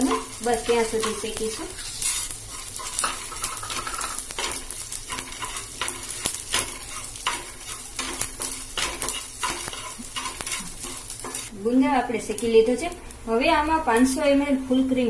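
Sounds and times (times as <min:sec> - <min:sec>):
wooden spatula scraping a pan: 0:00.0 - 0:11.5
frying in a pan: 0:00.0 - 0:15.0.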